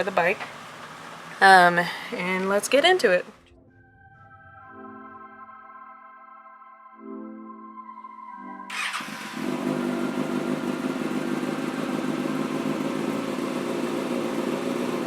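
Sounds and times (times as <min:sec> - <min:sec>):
held synthesizer chord: 0:03.3 - 0:13.6
motorcycle engine running: 0:08.7 - 0:15.0.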